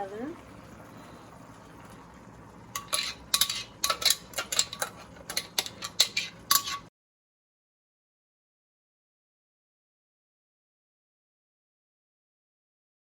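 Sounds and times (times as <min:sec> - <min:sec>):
utensil clattering against cookware: 0:02.7 - 0:06.9.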